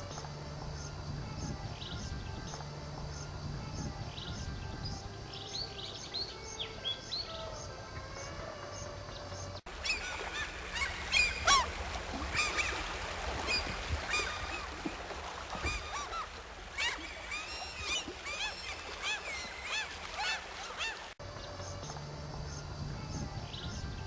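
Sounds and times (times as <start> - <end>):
flock of birds honking: 9.9 - 21.2.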